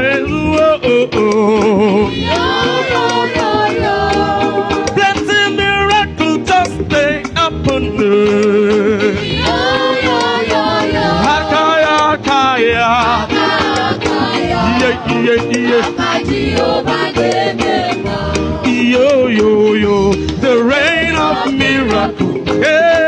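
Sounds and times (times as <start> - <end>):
bass: 0.0 - 23.0
live band: 0.0 - 23.0
steady drum beat: 0.3 - 23.0
gospel choir singing: 1.6 - 5.6, 8.8 - 23.0.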